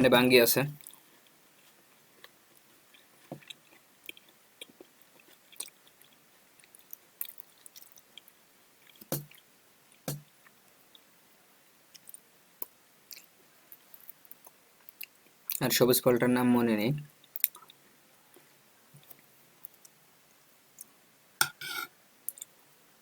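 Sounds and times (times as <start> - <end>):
person chewing food: 0.8 - 11.1, 11.9 - 13.4, 17.2 - 20.0.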